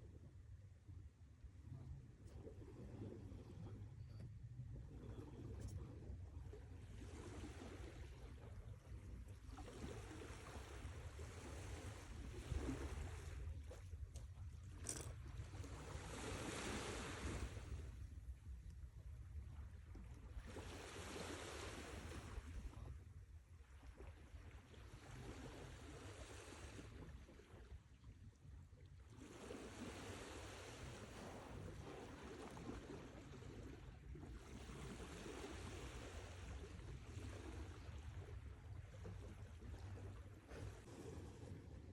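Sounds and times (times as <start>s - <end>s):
low rumble of sea: 0.0s - 41.9s
sea waves washing in: 15.7s - 18.0s, 20.4s - 22.6s.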